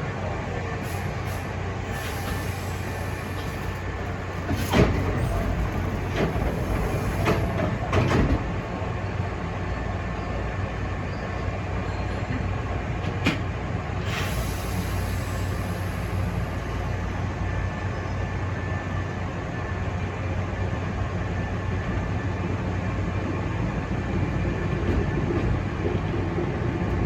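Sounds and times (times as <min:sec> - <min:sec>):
electric train rumble: 0:00.0 - 0:27.0
wheel clunks on track: 0:04.4 - 0:08.7.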